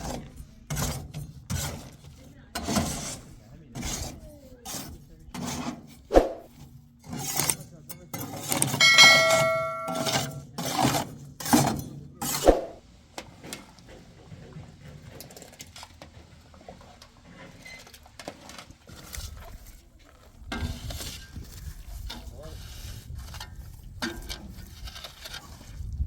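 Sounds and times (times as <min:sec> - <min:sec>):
metal tool striking: 0:08.8 - 0:10.4.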